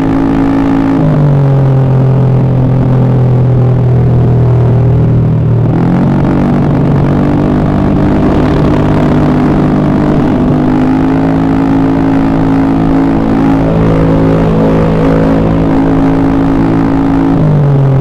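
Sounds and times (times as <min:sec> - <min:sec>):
scooter engine running: 0:11.7 - 0:18.0.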